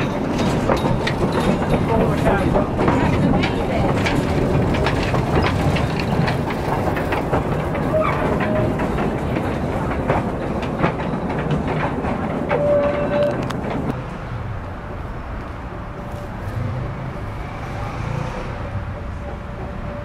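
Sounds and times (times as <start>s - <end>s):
train wheels clattering: 0.0s - 14.5s, 15.2s - 20.0s.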